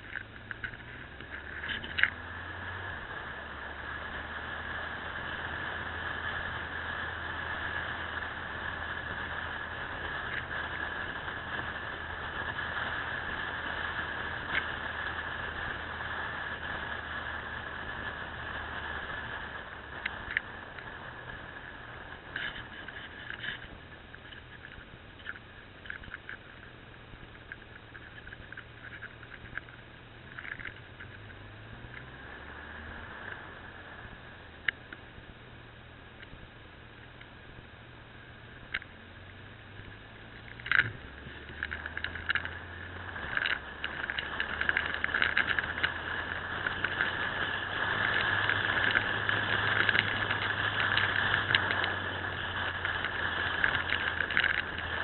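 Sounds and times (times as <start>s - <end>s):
crackling rattle: 0.0s - 55.0s
motorcycle engine running: 0.0s - 55.0s.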